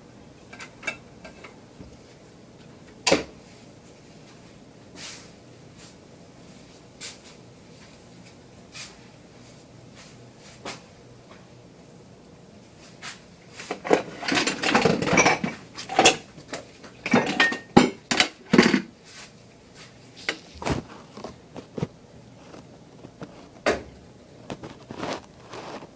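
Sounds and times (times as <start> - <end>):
dishes and cutlery clattering: 13.8 - 16.3, 17.0 - 18.9.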